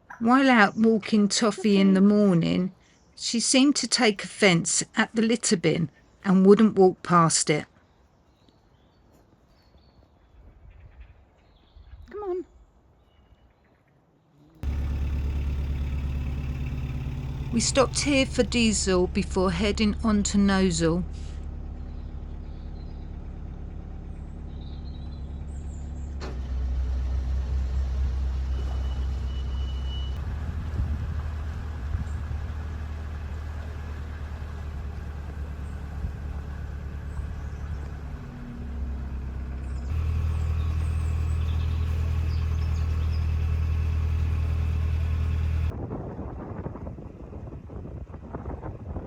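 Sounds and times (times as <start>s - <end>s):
diesel engine droning: 14.6s - 45.8s.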